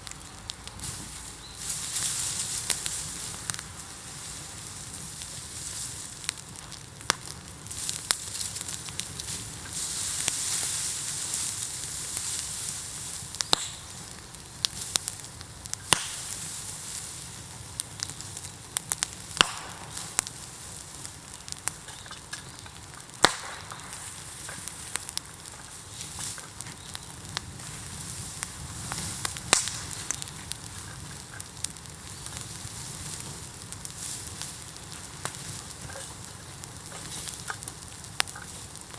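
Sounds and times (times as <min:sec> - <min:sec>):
bonfire hissing and crackling: 0:00.0 - 0:38.9
loud sharp bamboo cracks: 0:06.2 - 0:09.4, 0:13.2 - 0:16.6, 0:17.8 - 0:27.5, 0:28.9 - 0:32.4.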